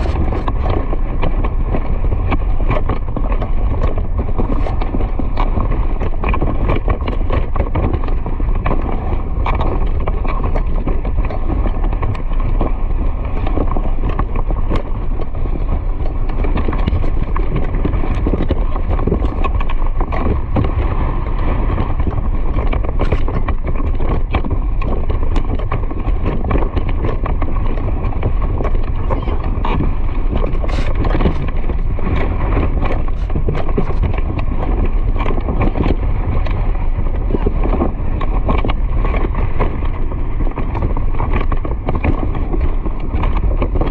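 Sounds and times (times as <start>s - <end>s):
running animal hooves clip-clopping: 0.0s - 43.9s.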